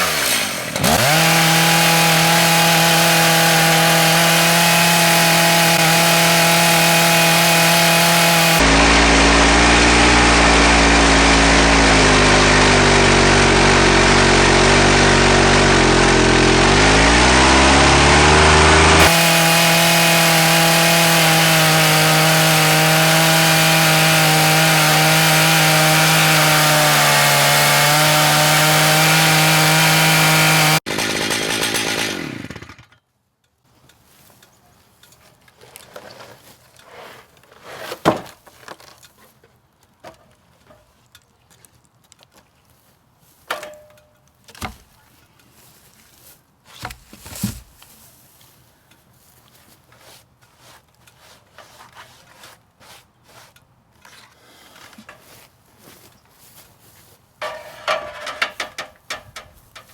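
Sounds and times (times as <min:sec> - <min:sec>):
chainsaw cutting at high revs: 0:00.0 - 0:33.0
knocks and clunks: 0:46.8 - 0:47.9, 0:57.4 - 0:59.9.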